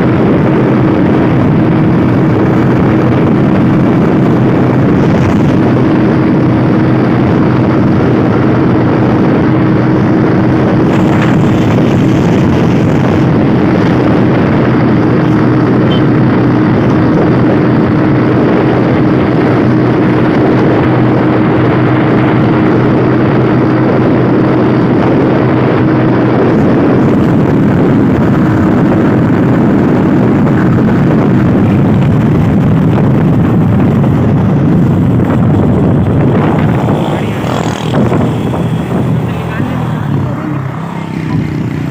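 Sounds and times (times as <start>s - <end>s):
motorcycle engine running: 0.0s - 41.9s
wind rushing over microphone: 0.0s - 41.9s.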